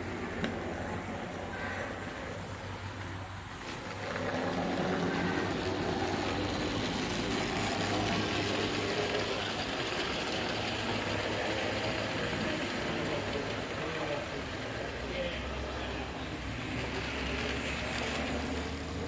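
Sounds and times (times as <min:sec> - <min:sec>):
model train motor humming: 0:01.0 - 0:19.0.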